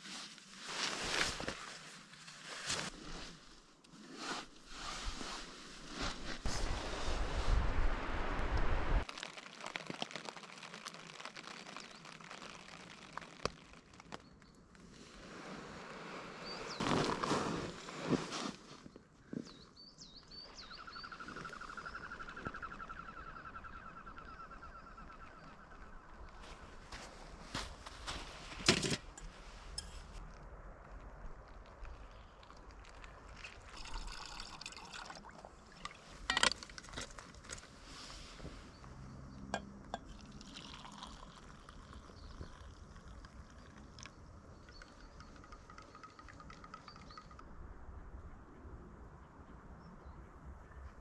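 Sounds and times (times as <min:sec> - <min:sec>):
water being poured: 0:09.0 - 0:14.2, 0:32.4 - 0:37.6, 0:39.6 - 0:47.4
camp cookware clinking: 0:35.8 - 0:37.0
high bird chirps: 0:44.5 - 0:47.4.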